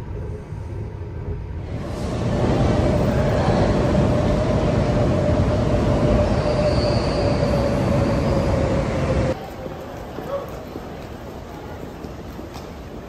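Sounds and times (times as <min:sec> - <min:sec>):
street noise: 0:00.0 - 0:13.0
train wheels rumbling on rails: 0:01.5 - 0:13.0
faint high wheel squeal: 0:05.8 - 0:09.4.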